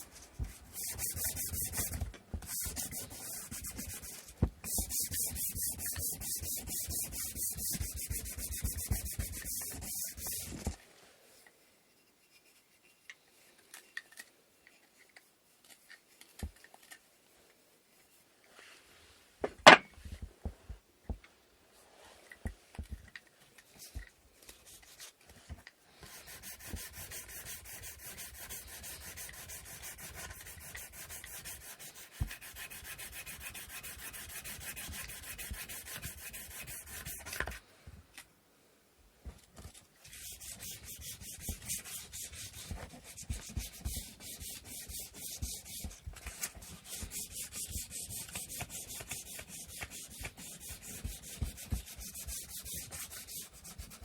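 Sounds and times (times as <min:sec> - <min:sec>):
sandpaper sanding wood: 0:00.0 - 0:10.6, 0:26.1 - 0:37.4, 0:40.1 - 0:54.0.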